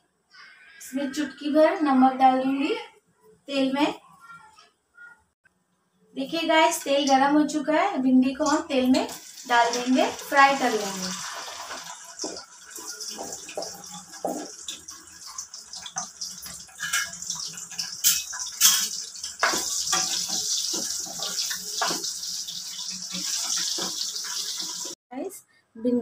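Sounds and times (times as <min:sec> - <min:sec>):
okra sizzling in hot oil: 0:08.6 - 0:25.0
oil popping and crackling: 0:11.0 - 0:25.0.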